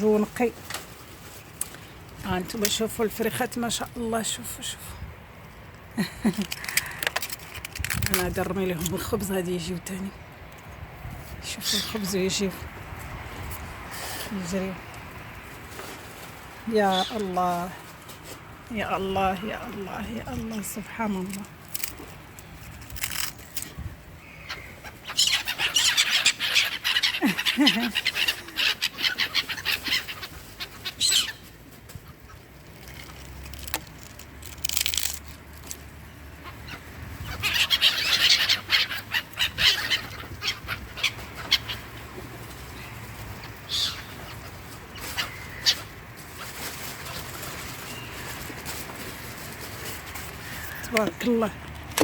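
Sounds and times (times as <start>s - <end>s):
small birds chirping and twittering: 8.6s - 18.0s, 22.0s - 33.4s, 35.9s - 51.5s.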